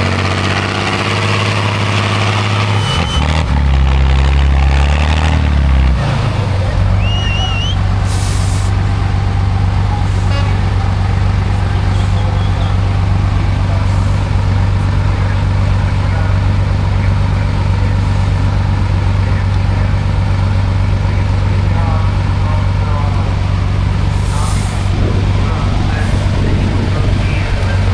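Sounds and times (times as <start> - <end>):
truck engine droning: 0.0 - 27.9
short hiss: 8.0 - 8.7, 24.1 - 24.9.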